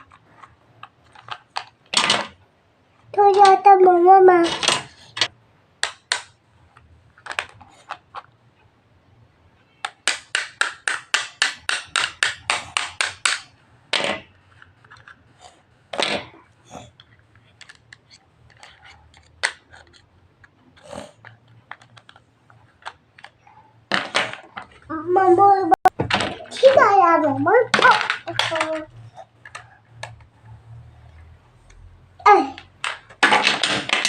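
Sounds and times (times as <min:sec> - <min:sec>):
tools tapping and clicking: 0:04.4 - 0:08.3, 0:09.7 - 0:15.2, 0:16.9 - 0:24.9, 0:27.7 - 0:30.3, 0:31.2 - 0:34.0.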